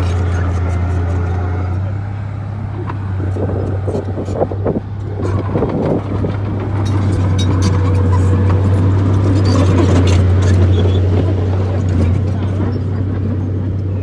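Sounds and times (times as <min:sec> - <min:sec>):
bulldozer diesel engine drone: 0:00.0 - 0:14.0
metallic clanks and rattles: 0:05.1 - 0:13.6.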